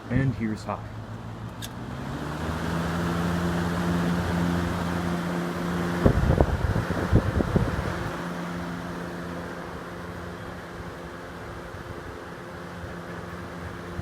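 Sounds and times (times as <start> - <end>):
box fan motor hum and air rush: 0.0 - 14.0
wind buffeting microphone: 5.6 - 8.6.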